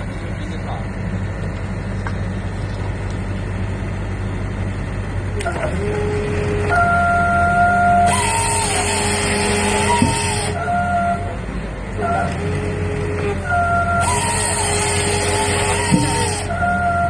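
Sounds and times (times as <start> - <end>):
machinery humming: 0.0 - 17.0
wavering whine: 13.2 - 17.0.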